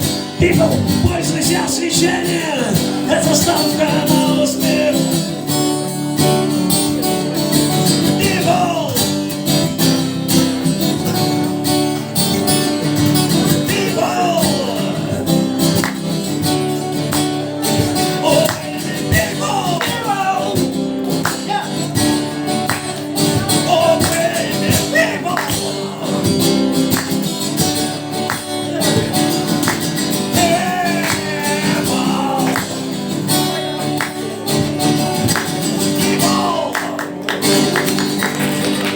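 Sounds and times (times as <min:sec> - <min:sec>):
live rock band playing: 0:00.0 - 0:36.5
strummed acoustic guitar: 0:00.0 - 0:38.9.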